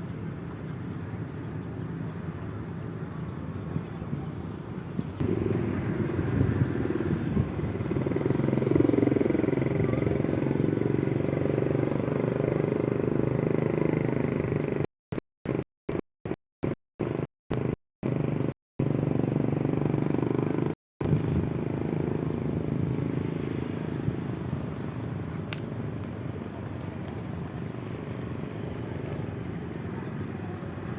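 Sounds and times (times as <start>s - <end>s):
wind noise: 3.7s - 9.2s, 21.0s - 30.9s
electric motorbike humming: 5.2s - 14.9s, 17.0s - 30.9s.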